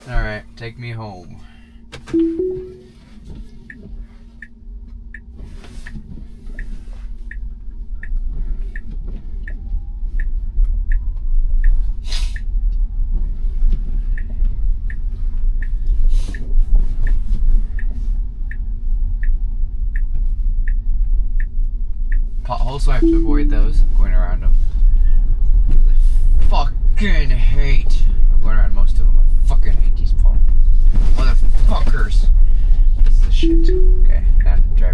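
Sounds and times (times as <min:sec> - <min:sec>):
steady hum: 0:23.0 - 0:23.9.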